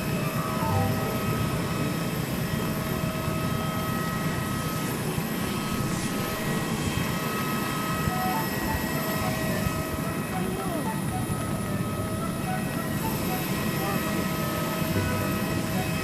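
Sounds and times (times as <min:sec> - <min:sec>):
high whining tones: 0:00.2 - 0:16.0
airplane cabin rumble: 0:05.5 - 0:16.0.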